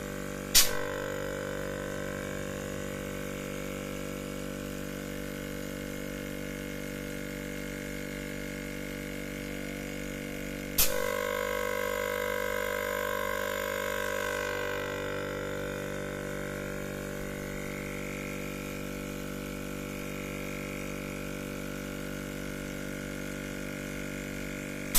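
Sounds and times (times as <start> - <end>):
refrigerator compressor hum: 0.0 - 24.9.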